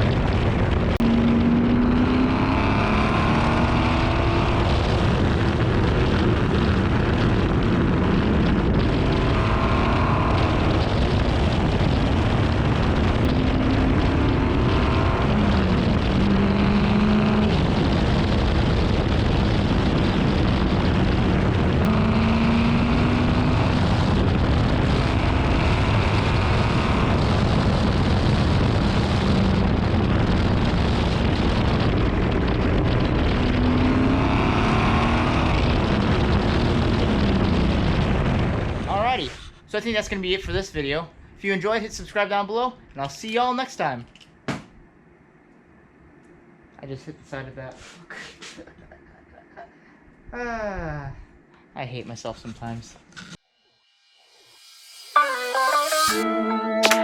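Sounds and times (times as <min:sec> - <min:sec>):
car engine accelerating: 0:00.0 - 0:38.8
road and wind noise: 0:00.0 - 0:45.2.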